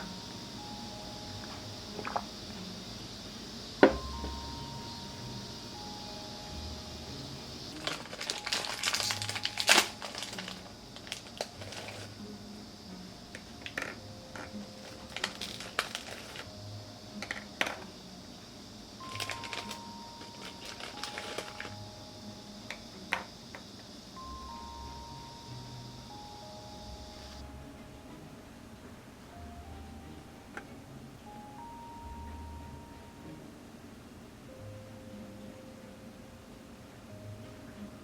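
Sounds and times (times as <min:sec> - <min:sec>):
crisp crunches and clicks of eating: 0:07.8 - 0:12.1, 0:13.4 - 0:16.5, 0:19.0 - 0:21.8.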